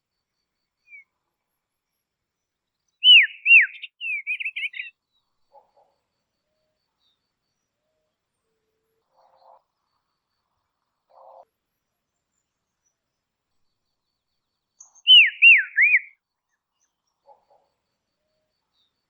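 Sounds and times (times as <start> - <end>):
robin whistled calls: 0.8 - 1.1, 3.0 - 4.9, 14.8 - 16.1.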